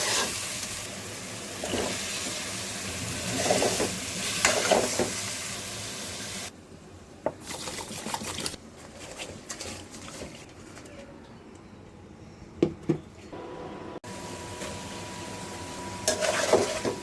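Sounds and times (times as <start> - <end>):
food sizzling in a pan: 0.0 - 6.5, 14.1 - 17.0
spatula scraping a pan: 3.3 - 5.1, 16.0 - 17.0.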